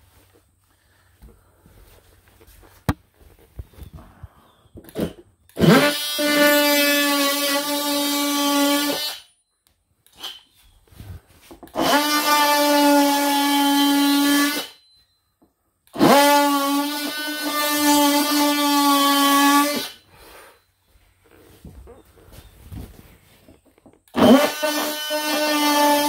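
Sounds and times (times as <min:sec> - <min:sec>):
oscillating multi-tool buzzing: 0:04.9 - 0:09.4, 0:10.0 - 0:10.6, 0:11.7 - 0:15.0, 0:15.9 - 0:20.1, 0:24.1 - 0:26.0.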